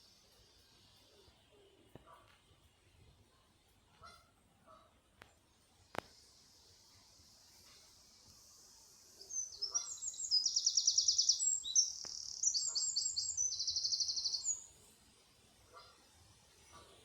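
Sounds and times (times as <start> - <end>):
songbird trilling: 9.3 - 14.7.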